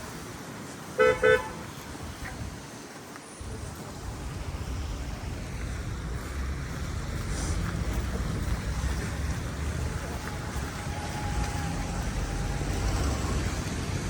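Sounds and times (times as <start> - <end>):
street noise rumble: 0.0 - 14.0
car horn toots: 1.0 - 1.6.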